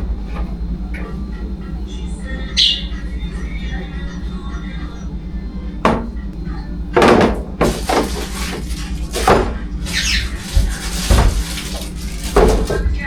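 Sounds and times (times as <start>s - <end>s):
steady low hum: 0.0s - 13.0s
knocks and clunks: 7.0s - 9.6s.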